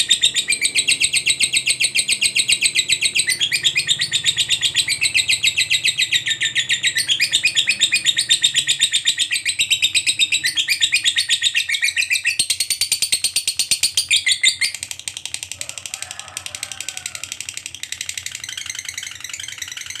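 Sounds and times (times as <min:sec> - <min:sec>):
lovebird chattering trill: 0:00.0 - 0:20.0.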